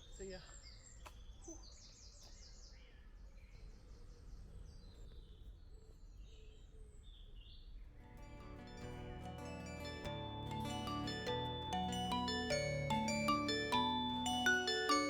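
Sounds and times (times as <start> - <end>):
music with chime-like notes: 8.1 - 15.0.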